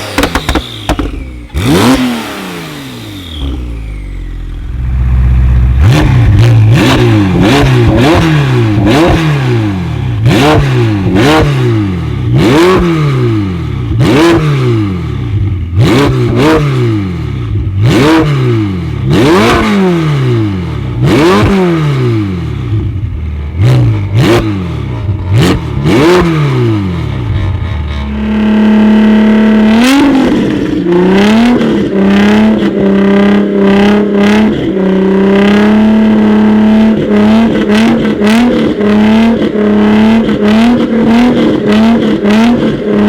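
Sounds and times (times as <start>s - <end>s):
exhaust cracks: 0.0s - 2.4s
car engine revving: 0.0s - 43.0s.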